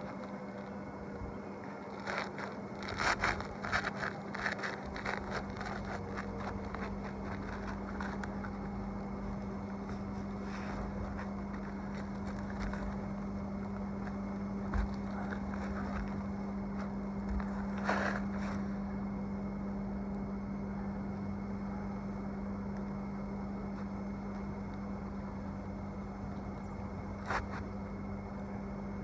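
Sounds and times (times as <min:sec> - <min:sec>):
steady low hum: 0:00.0 - 0:29.0
scraping and tapping on roof shingles: 0:01.9 - 0:08.8, 0:09.7 - 0:13.4, 0:14.0 - 0:18.6.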